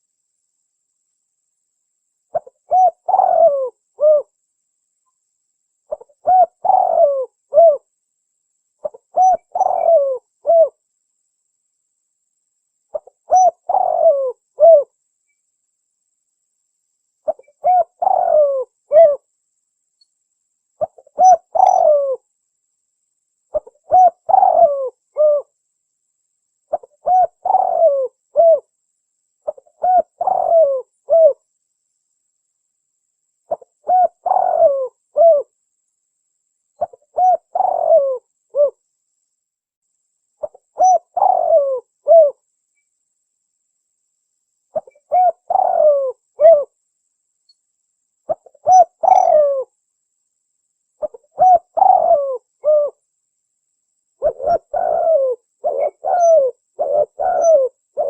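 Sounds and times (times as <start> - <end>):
dove cooing: 2.3 - 4.3, 5.9 - 7.9, 8.8 - 10.8, 12.9 - 14.9, 17.2 - 19.2, 20.8 - 22.2, 23.5 - 25.5, 26.7 - 28.7, 29.4 - 31.4, 33.5 - 35.5, 36.8 - 38.8, 40.4 - 42.4, 44.8 - 46.8, 48.3 - 49.7, 51.0 - 53.0, 54.2 - 58.0.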